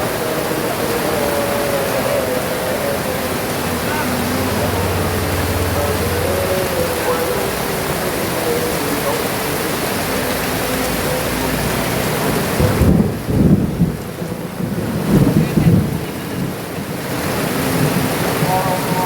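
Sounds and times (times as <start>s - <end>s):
heavy rain pouring: 0.0s - 19.0s
deep rumble of thunder: 11.6s - 19.0s.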